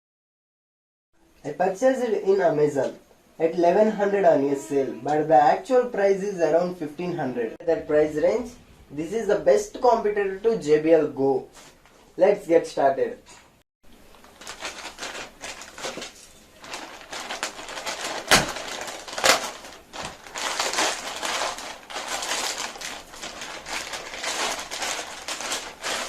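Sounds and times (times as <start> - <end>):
packaging crackling and rustling: 14.0 - 26.0.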